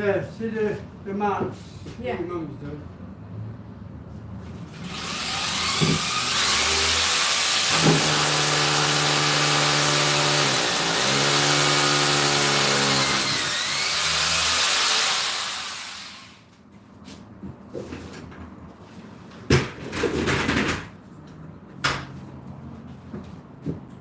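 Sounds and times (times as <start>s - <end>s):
power drill drilling into wall: 4.8s - 16.4s.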